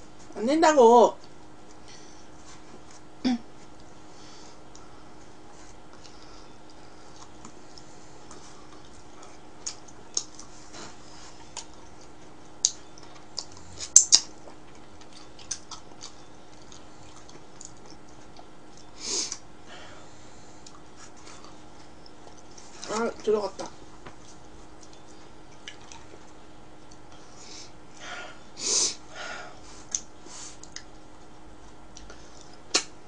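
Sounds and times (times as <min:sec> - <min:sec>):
faint steady hum: 0:00.0 - 0:33.0
wet mouth chewing and smacking: 0:05.9 - 0:10.5, 0:11.4 - 0:19.5, 0:24.2 - 0:27.1, 0:29.9 - 0:31.1.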